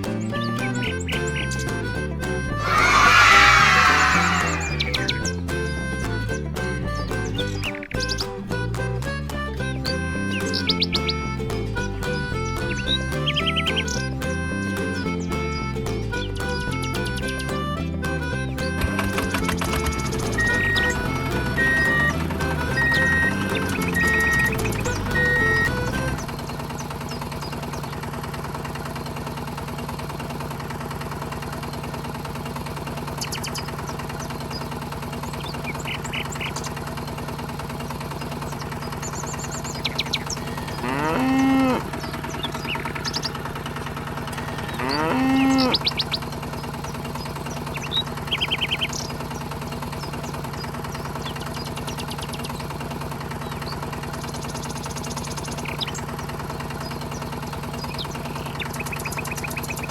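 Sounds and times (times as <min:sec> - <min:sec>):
low engine-like hum: 0:00.0 - 0:59.9
cow mooing: 0:40.5 - 0:42.0, 0:44.4 - 0:46.0.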